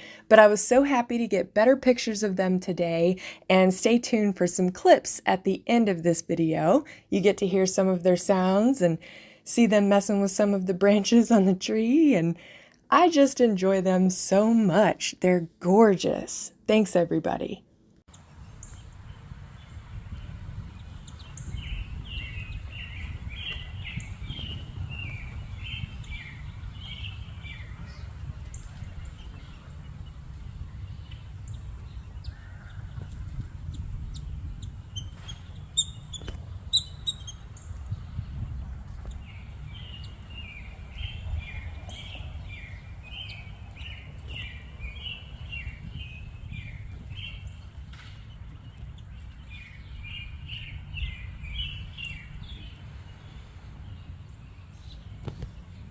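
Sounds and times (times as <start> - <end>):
low outdoor rumble: 18.0 - 55.9
birds chirping: 18.5 - 55.9.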